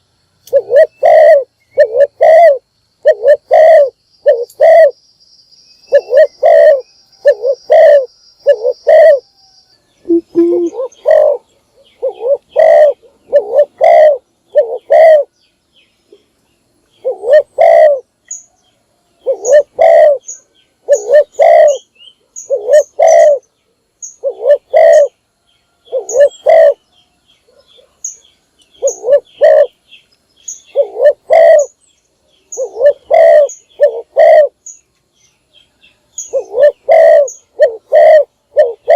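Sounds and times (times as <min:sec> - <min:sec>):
small bird chirping: 0:00.0 - 0:38.9
dove cooing: 0:00.5 - 0:05.0, 0:05.9 - 0:09.4, 0:10.0 - 0:15.3, 0:17.0 - 0:18.1, 0:19.2 - 0:23.5, 0:24.1 - 0:25.2, 0:25.8 - 0:26.9, 0:28.8 - 0:29.8, 0:30.5 - 0:31.8, 0:32.5 - 0:34.6, 0:36.2 - 0:38.9.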